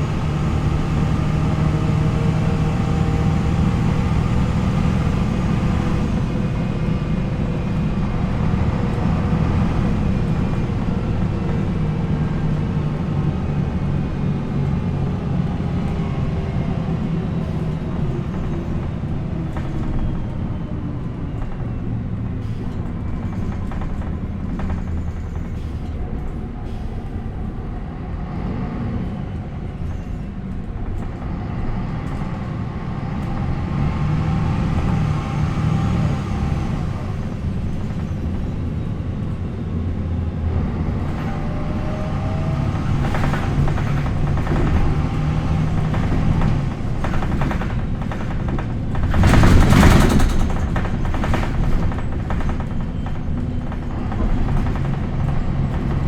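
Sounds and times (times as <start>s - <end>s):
knocks and rattles: 0.0s - 27.2s, 40.7s - 56.0s
bus diesel engine running: 0.0s - 56.0s.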